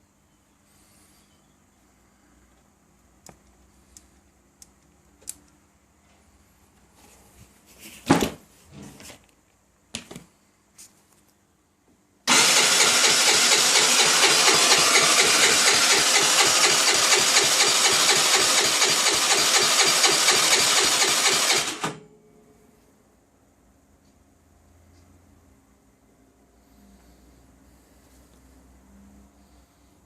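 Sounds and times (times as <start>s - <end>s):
scooter electric starter cranking: 12.3s - 22.0s.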